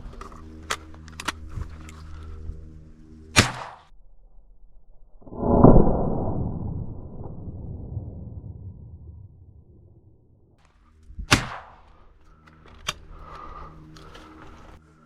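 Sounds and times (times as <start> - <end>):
shotgun shot: 3.4 - 3.9, 11.3 - 11.9
muffled low rumble: 3.9 - 10.5.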